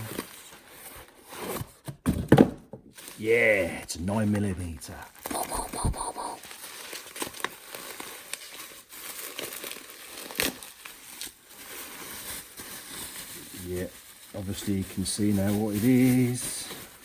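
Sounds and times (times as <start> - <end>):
packaging crinkling and tearing: 6.5 - 17.0.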